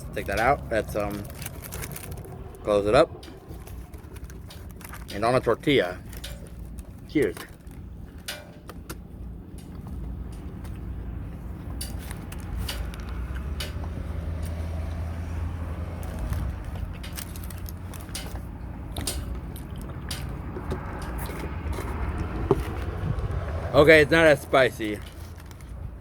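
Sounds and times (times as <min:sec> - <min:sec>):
small clicks and rustles: 0:16.0 - 0:23.2
person chewing: 0:18.9 - 0:20.2.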